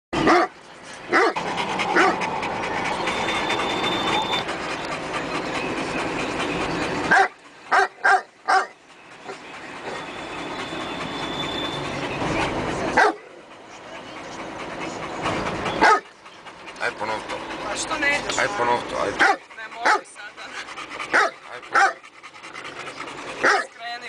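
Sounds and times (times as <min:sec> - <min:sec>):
dog barking: 0:00.2 - 0:00.5, 0:01.1 - 0:02.2, 0:07.1 - 0:10.0, 0:13.0 - 0:13.2, 0:15.8 - 0:16.1, 0:19.2 - 0:20.1, 0:21.1 - 0:22.0, 0:23.4 - 0:23.7.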